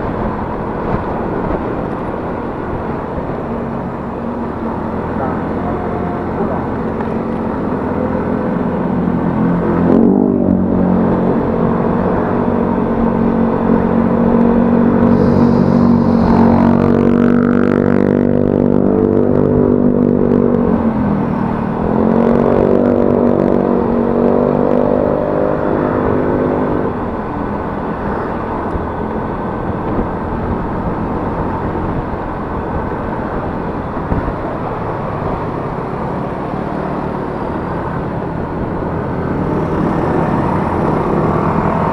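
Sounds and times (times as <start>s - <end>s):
scooter engine while riding: 0.0s - 41.9s
wind and road noise: 0.0s - 41.9s.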